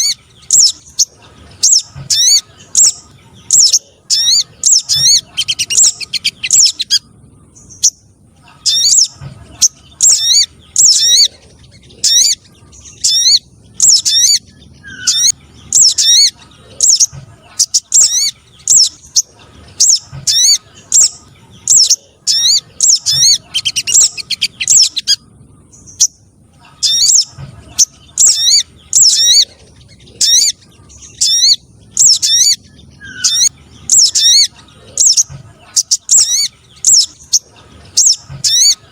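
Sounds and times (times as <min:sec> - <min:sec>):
recorded bird chirps: 0:00.0 - 0:38.9.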